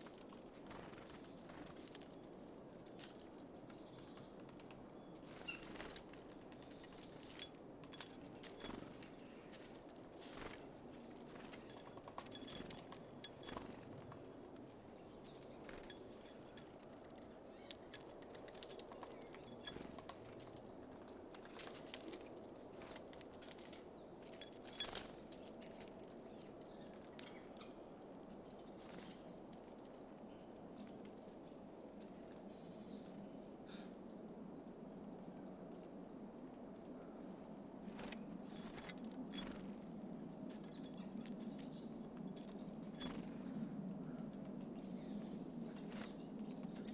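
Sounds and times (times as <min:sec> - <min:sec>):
birds pecking at seeds: 0:00.0 - 0:32.4, 0:34.6 - 0:46.9
steady low background hum: 0:00.0 - 0:46.9
faint high-pitched bird chirps: 0:05.3 - 0:06.1.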